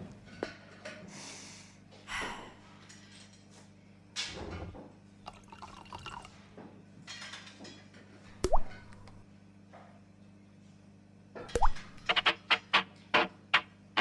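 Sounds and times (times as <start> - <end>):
liquid dripping and splashing: 8.4 - 9.2, 11.6 - 11.9.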